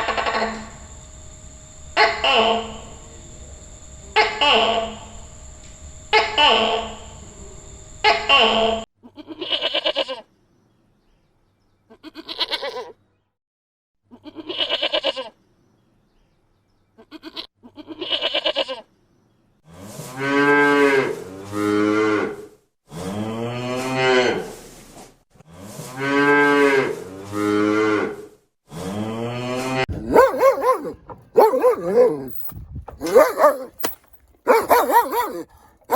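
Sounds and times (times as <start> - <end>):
quavering bleats: 11.9 - 12.9, 14.2 - 15.3, 17.0 - 18.8
cow mooing: 29.2 - 32.3.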